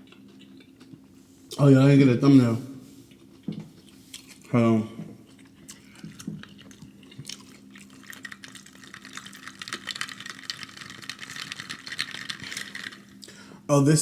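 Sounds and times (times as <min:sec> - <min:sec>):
juice pouring into cup: 0:07.4 - 0:13.2.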